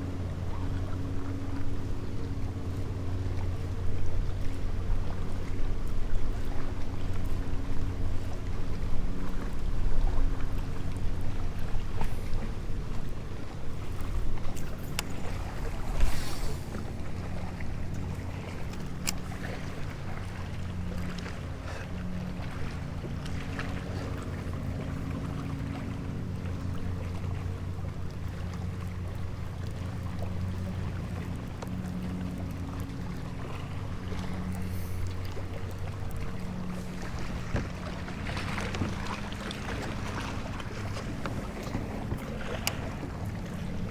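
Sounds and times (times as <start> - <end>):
low steady hum: 0.0 - 43.9
water slapping kayak hull: 0.0 - 43.9
wind: 0.0 - 43.9
wave splash: 9.2 - 43.9.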